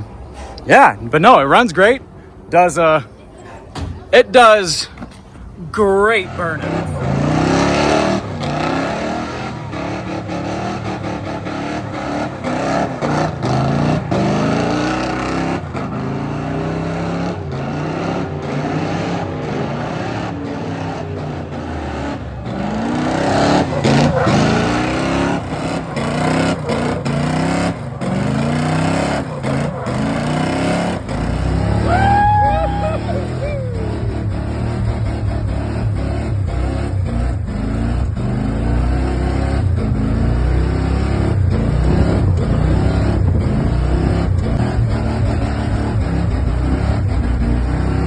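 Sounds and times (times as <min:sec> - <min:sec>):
vee eight engine revving hard: 0:04.2 - 0:48.0.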